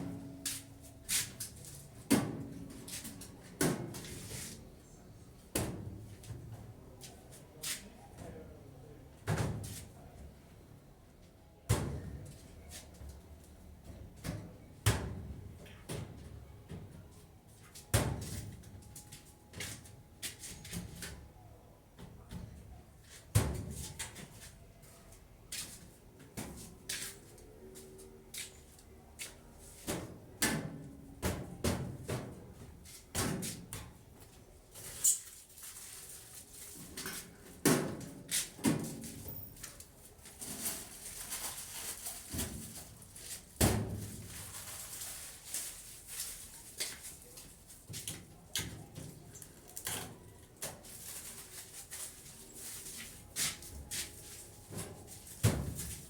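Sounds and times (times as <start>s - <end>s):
knocks and rattles of cart parts: 36.1s - 48.0s, 49.9s - 56.0s.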